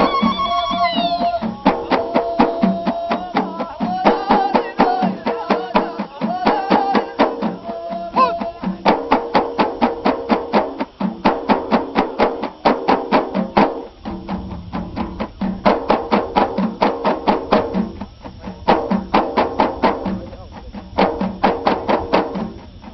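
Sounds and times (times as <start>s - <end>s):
group of voices chanting: 0.0s - 8.8s
frame drums beating: 0.0s - 22.9s.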